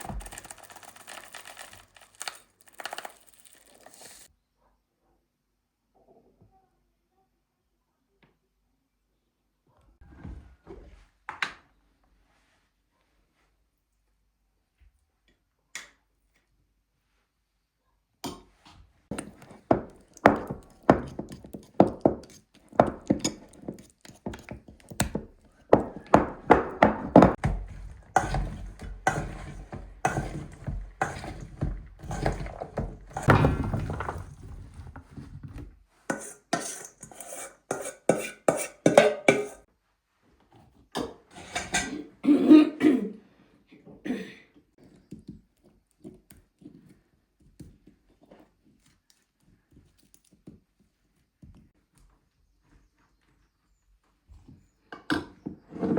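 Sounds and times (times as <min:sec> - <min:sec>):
knocks and thunks: 0:31.6 - 0:35.6.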